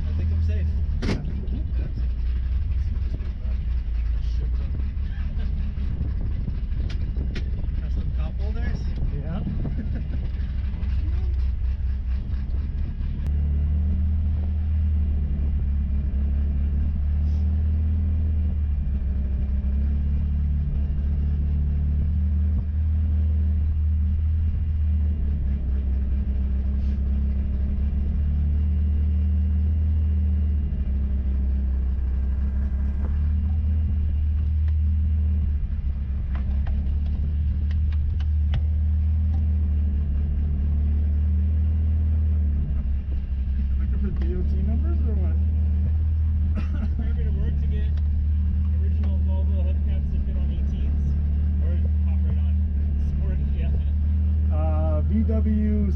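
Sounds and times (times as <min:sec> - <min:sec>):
car engine low rumble: 0:00.0 - 0:55.9.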